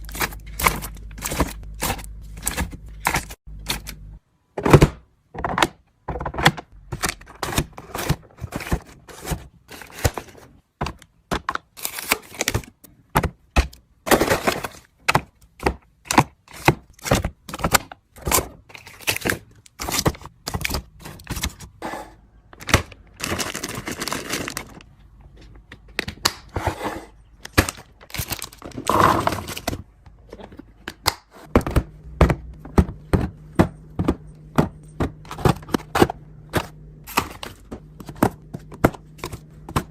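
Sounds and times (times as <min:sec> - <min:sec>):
plastic containers clicking and knocking: 0:04.5 - 0:18.4, 0:27.4 - 0:39.9
packaging rustling: 0:22.8 - 0:24.9.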